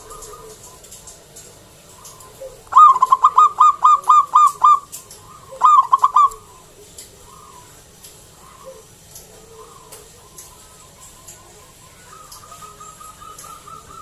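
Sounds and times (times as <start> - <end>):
dove staccato cooing: 0.0 - 14.0.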